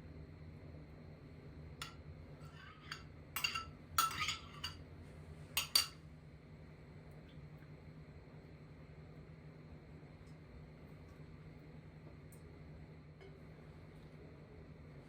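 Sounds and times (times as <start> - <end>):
cutlery and dishes clinking: 2.6 - 4.8.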